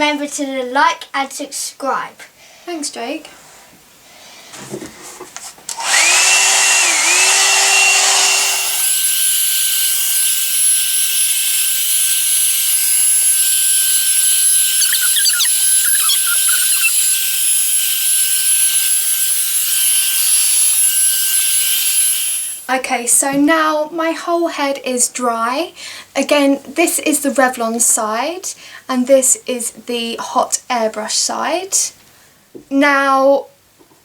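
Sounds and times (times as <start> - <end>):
hair dryer fan blowing: 5.7 - 8.9.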